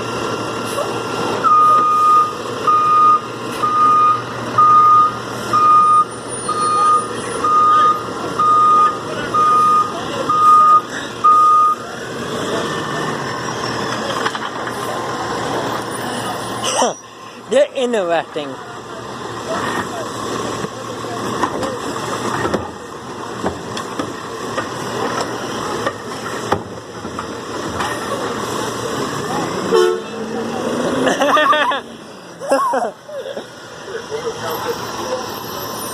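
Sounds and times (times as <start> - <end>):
truck engine running: 0.0 - 35.9
reversing alarm beeping: 1.4 - 11.8.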